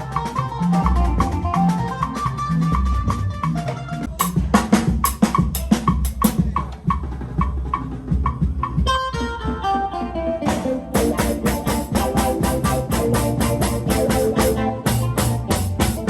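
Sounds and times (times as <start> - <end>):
live band playing: 0.0 - 16.0
hard drum kit hits: 10.5 - 16.0.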